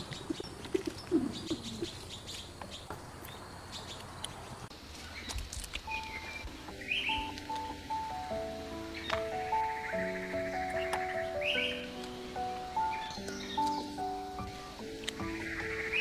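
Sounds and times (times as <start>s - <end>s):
dove cooing: 0.0s - 2.3s
high bird chirps: 5.1s - 7.4s, 8.7s - 16.0s
background music sustained notes: 5.6s - 16.0s.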